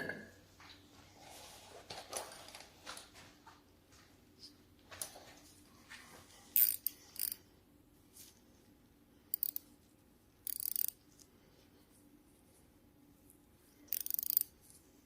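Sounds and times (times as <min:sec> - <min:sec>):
ratchet clicking: 0:06.6 - 0:07.4, 0:09.3 - 0:09.6, 0:10.4 - 0:11.0, 0:13.9 - 0:14.5.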